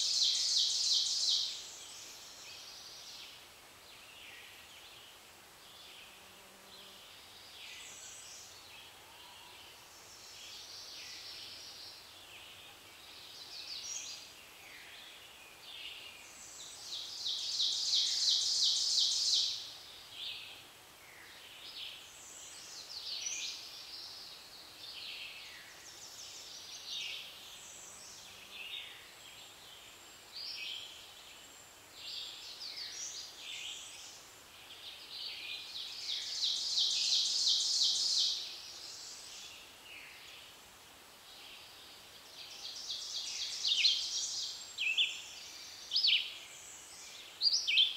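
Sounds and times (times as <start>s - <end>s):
songbirds singing: 41.2s - 47.9s.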